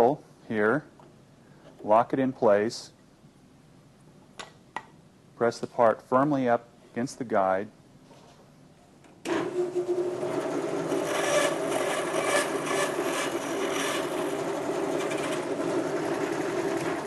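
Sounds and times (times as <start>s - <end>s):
bandsaw cutting: 9.3s - 17.0s.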